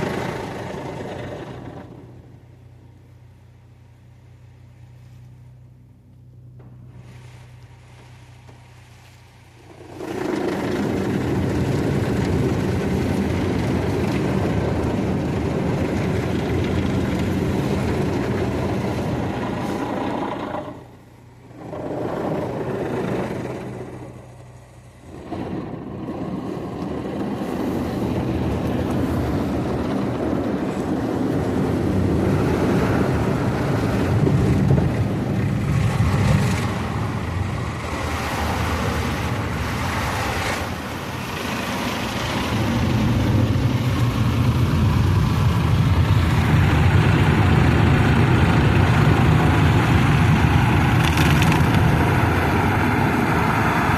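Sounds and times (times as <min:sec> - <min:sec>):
car wash water spray rushing: 0:00.0 - 0:53.9.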